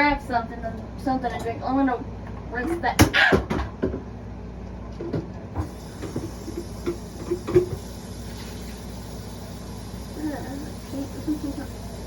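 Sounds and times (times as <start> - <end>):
sink tap running: 5.6 - 12.0.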